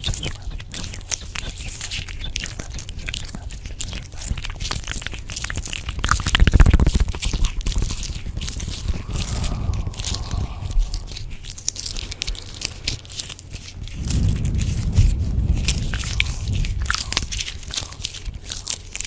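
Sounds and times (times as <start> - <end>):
crunching and crackling: 0.0 - 19.0
low rumble: 8.4 - 12.9, 13.8 - 18.2.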